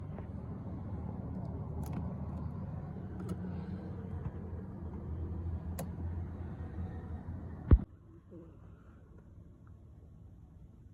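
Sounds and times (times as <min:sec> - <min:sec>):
car engine rumbling: 0:00.0 - 0:07.9.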